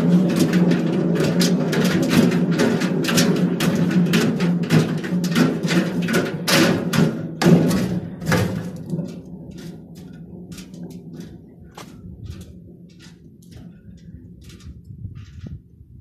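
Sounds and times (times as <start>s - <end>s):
low hum: 8.0s - 16.0s.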